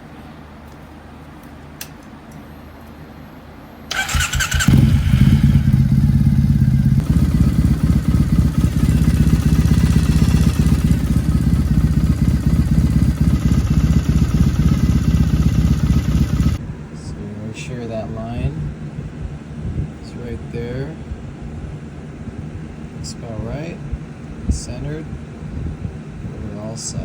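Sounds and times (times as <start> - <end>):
electric starter cranking: 3.9 - 16.6
motorcycle engine idling: 3.9 - 16.6.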